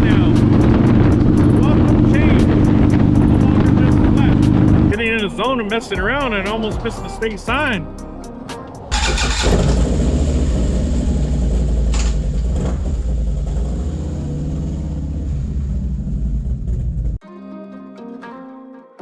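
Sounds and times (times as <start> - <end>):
motorcycle engine cruising: 0.0 - 5.1, 8.9 - 17.2
wind rushing: 0.0 - 5.4.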